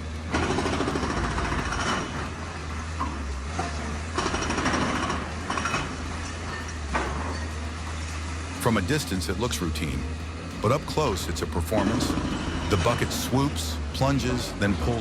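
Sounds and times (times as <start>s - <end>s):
excavator engine drone: 0.0s - 15.0s
rattling clatter of falling debris: 0.3s - 8.4s.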